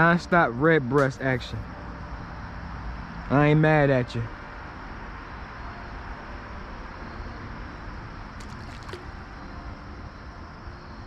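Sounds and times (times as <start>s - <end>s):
creek water flowing: 8.3s - 9.8s.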